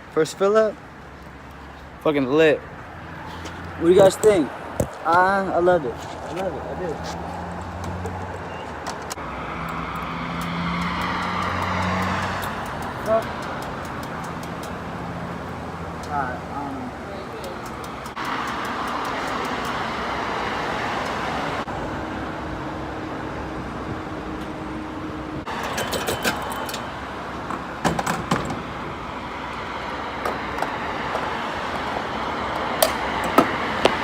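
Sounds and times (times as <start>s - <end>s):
road traffic noise: 0.0s - 34.0s
sharp clicks and knocks: 10.4s - 14.8s.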